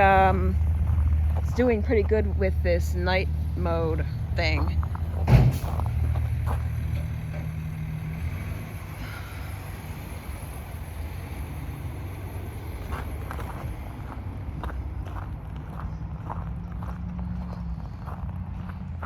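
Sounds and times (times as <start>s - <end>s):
faint footsteps: 0.0s - 7.9s, 12.8s - 19.0s
vehicle engine rumbling: 0.0s - 19.0s.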